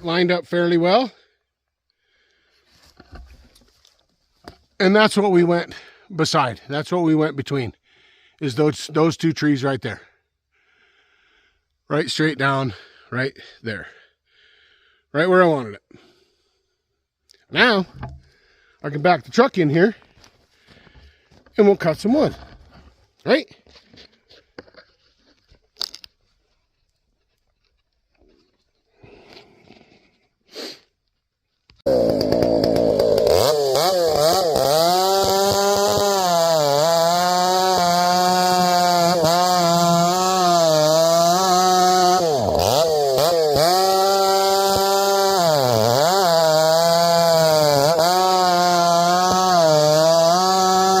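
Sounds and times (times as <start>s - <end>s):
chainsaw running at high revs: 31.8s - 51.0s.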